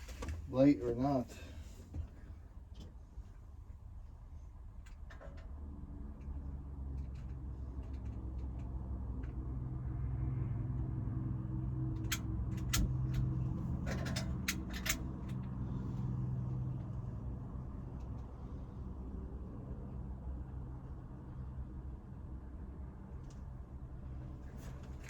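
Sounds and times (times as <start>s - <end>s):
vehicle engine hum: 0.0s - 25.0s.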